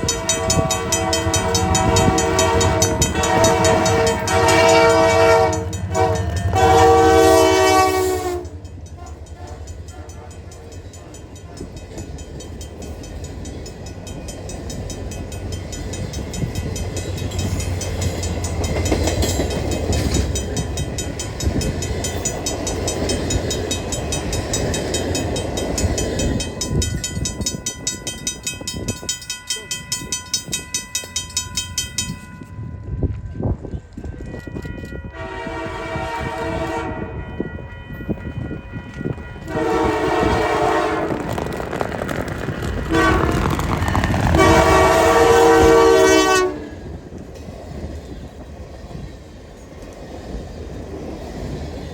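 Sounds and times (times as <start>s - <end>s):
train air horn: 0.0s - 10.6s, 34.2s - 37.4s, 39.4s - 41.4s, 42.9s - 46.9s
train rumbling past: 0.0s - 51.9s.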